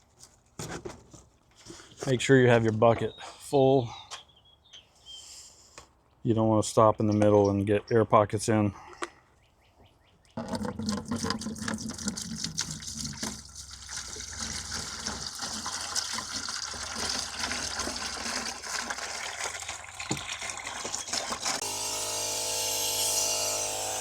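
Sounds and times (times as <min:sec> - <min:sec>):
liquid pouring and glugging: 0:10.4 - 0:21.6.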